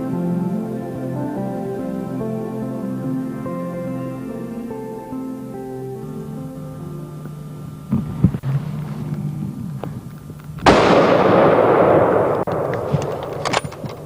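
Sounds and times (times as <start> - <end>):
soft background music: 0.0 - 9.5
shotgun blasts: 10.6 - 14.0.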